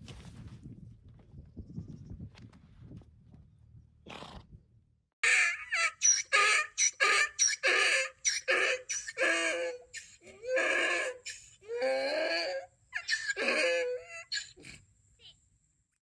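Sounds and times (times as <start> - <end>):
donkey braying: 5.2 - 14.8.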